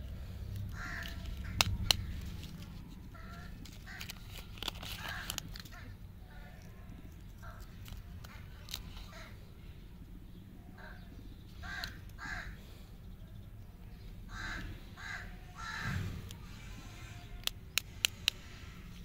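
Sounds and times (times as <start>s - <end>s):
candy wrappers crinkling: 0.6s - 9.1s
bird cawing: 0.7s - 2.4s, 3.1s - 4.2s, 4.9s - 9.5s, 10.6s - 12.8s, 14.3s - 17.4s.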